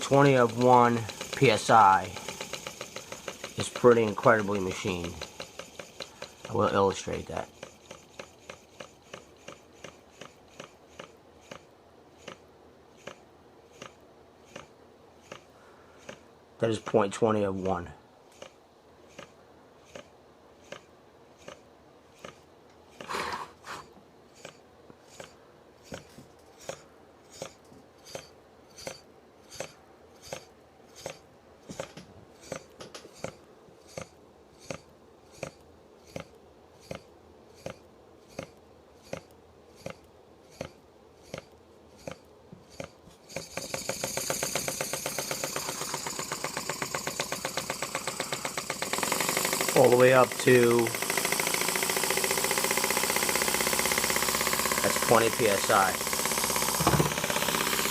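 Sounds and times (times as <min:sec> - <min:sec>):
engine knock: 0:00.0 - 0:06.7, 0:42.8 - 0:57.9
steam engine chuffing rapidly: 0:00.0 - 0:11.6, 0:41.3 - 0:57.9
model steam engine ticking: 0:00.0 - 0:12.4, 0:13.0 - 0:16.2, 0:19.9 - 0:21.6, 0:24.4 - 0:31.2, 0:31.8 - 0:57.9.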